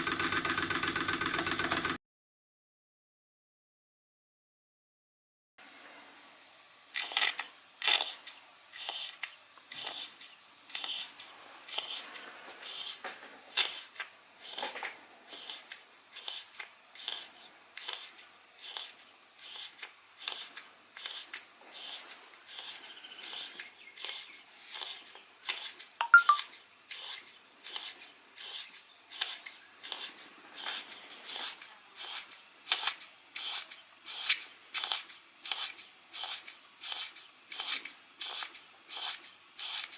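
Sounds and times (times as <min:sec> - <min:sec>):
model steam engine chuffing: 0:00.0 - 0:02.0, 0:07.8 - 0:39.9.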